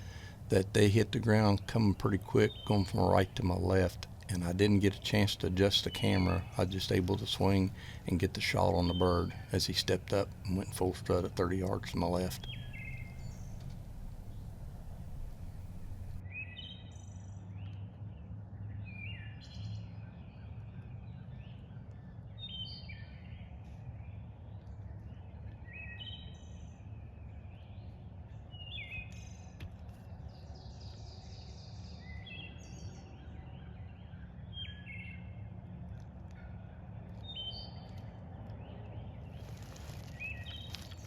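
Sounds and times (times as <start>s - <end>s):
low outdoor rumble: 0.0s - 16.2s
small birds chirping: 0.0s - 16.6s, 37.2s - 41.0s.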